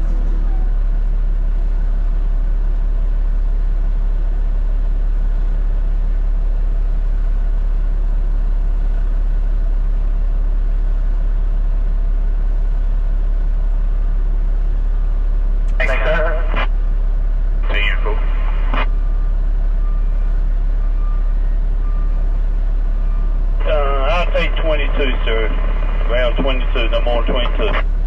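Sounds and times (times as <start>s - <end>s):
road noise: 0.0s - 6.6s, 13.3s - 28.0s
truck diesel engine droning: 0.0s - 28.0s.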